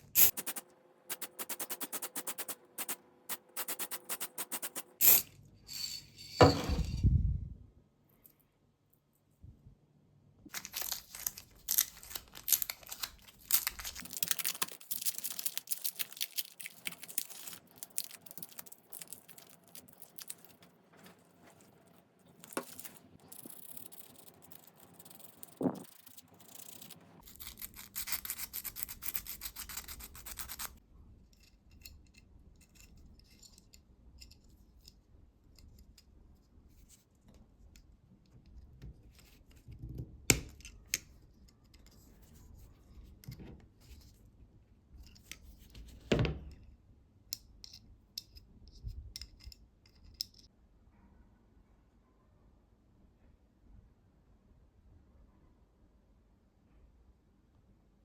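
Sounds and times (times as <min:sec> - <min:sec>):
hand rubbing a knife: 0:00.0 - 0:05.0.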